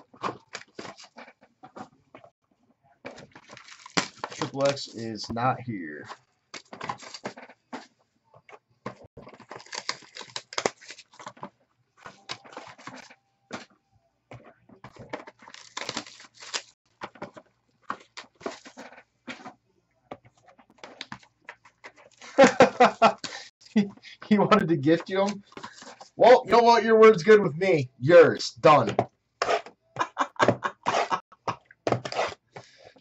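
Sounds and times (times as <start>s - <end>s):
trading cards packaging rustling: 3.2s - 5.1s, 6.6s - 7.9s, 9.2s - 13.7s, 14.9s - 19.5s.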